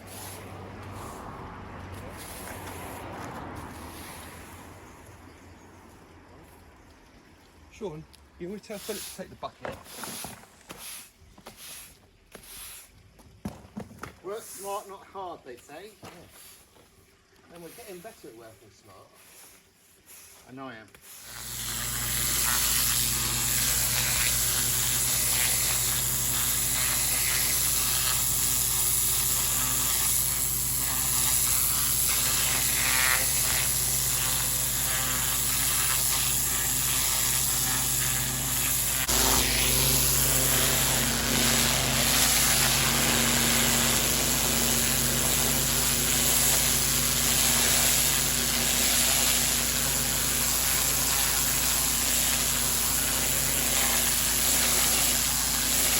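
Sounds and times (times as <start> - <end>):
high-pressure water jet hissing: 0.0 - 4.8, 8.5 - 12.9, 17.5 - 55.9
pressure washer engine humming: 0.0 - 4.9, 21.3 - 55.9.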